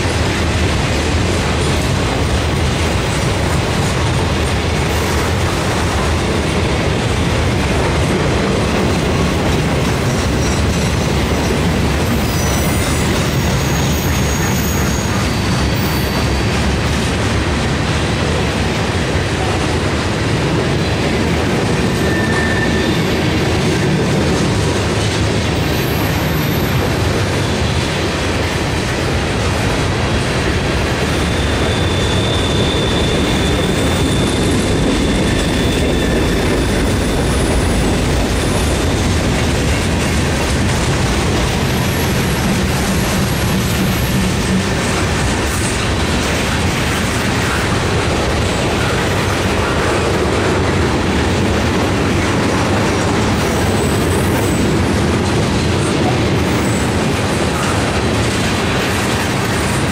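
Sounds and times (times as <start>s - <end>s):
wheels clacking over rail joints: 0.0s - 59.9s.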